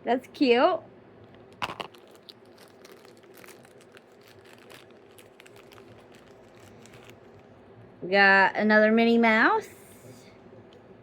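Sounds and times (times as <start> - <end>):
plastic bag crinkling: 1.4 - 7.6.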